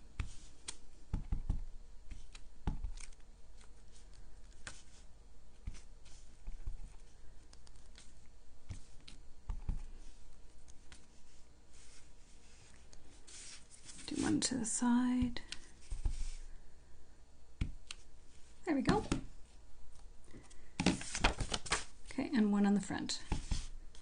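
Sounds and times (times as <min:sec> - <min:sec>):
paper rustling: 0:20.8 - 0:21.9.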